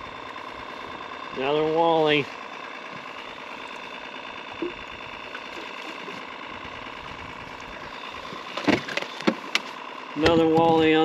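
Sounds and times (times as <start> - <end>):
boat motor humming: 0.0 - 11.0
sharp knocks and clicks: 8.5 - 10.9.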